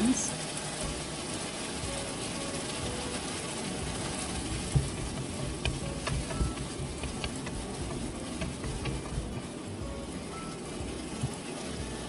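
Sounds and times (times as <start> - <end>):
food sizzling in a frying pan: 0.0 - 12.0
spatula knocking against pan: 4.8 - 9.3.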